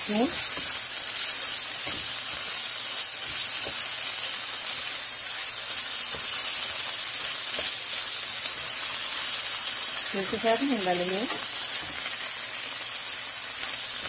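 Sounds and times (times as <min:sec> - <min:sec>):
onions sizzling in oil: 0:00.0 - 0:14.0
spatula stirring and tapping pan: 0:00.1 - 0:08.0.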